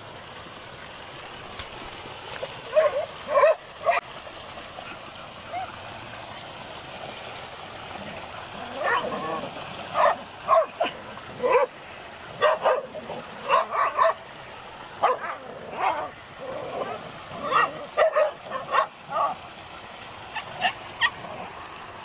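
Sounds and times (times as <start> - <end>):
dogs barking: 2.7 - 4.0, 8.7 - 14.3, 15.0 - 19.4, 20.3 - 21.5.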